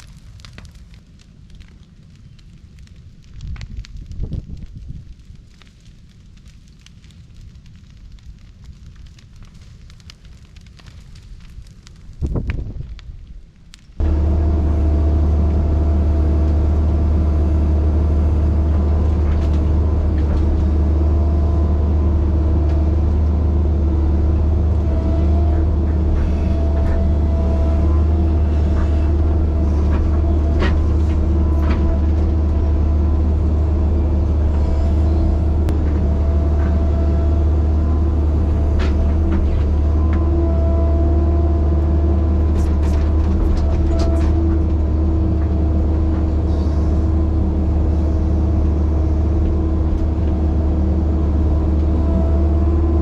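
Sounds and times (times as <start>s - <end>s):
excavator diesel engine running: 14.0s - 53.0s.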